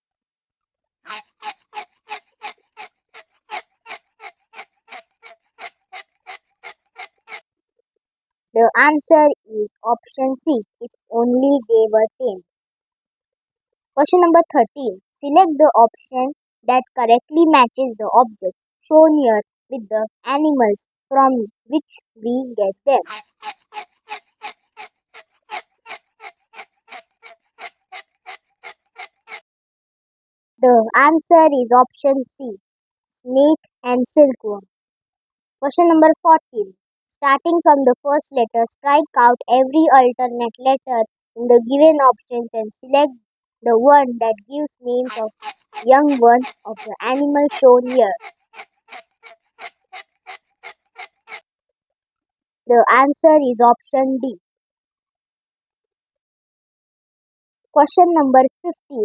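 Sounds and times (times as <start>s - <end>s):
clock ticking: 45.1s - 50.8s.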